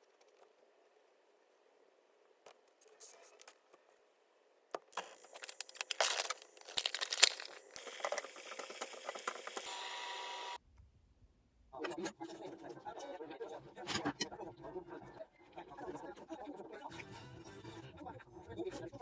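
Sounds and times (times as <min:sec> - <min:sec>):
close crinkling and rustling: 0:04.8 - 0:09.7.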